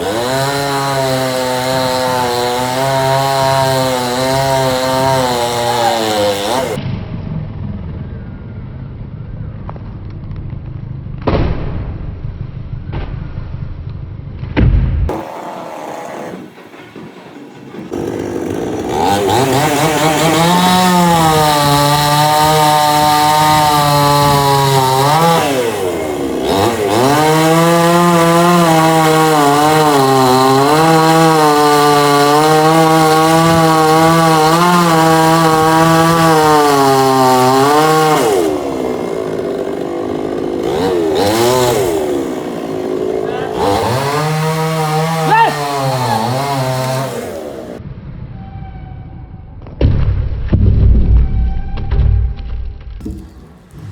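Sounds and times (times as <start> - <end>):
chainsaw engine revving: 0.0 - 6.8, 15.1 - 17.0, 17.8 - 47.8, 53.0 - 53.9.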